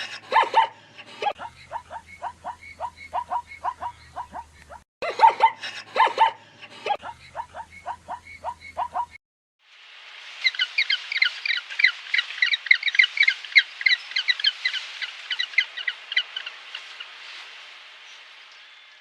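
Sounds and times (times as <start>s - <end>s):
dog yelping: 0.0s - 0.7s, 1.3s - 6.4s, 7.0s - 9.2s
flock of small birds chirping: 0.0s - 4.8s, 10.4s - 19.0s
steady hiss: 9.6s - 19.0s.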